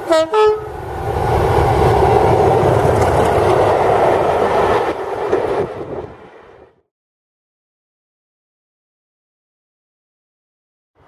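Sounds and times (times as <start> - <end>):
train horn: 0.0 - 0.8
train wheels rumbling on rails: 0.0 - 6.8.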